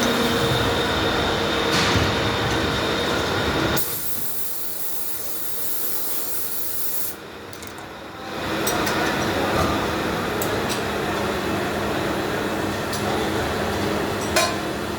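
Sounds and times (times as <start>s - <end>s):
milling machine humming: 0.0s - 4.8s
machine hissing: 0.0s - 7.2s.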